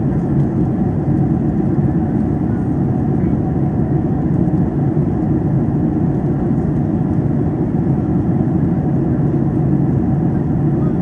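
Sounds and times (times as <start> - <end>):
airplane cabin noise: 0.0 - 11.0.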